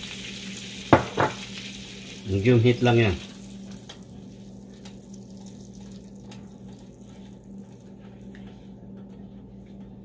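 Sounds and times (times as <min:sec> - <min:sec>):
butter sizzling in a wok: 0:00.0 - 0:07.0
steady low hum: 0:00.2 - 0:10.0.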